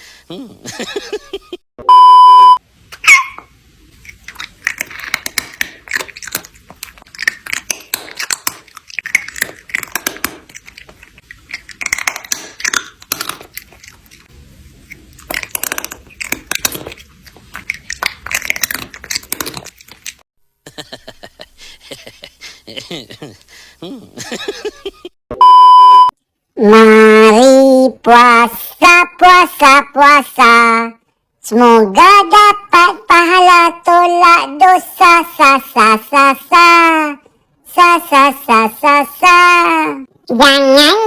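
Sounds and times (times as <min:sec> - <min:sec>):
loud steady beep: 0:01.8 - 0:02.6, 0:25.4 - 0:26.1
crisp crunching clicks: 0:04.1 - 0:14.2.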